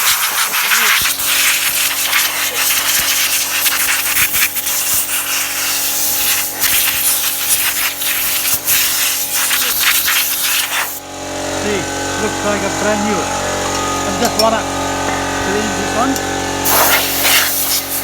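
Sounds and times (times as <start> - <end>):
air blow gun hissing: 0.0 - 11.0, 16.6 - 18.0.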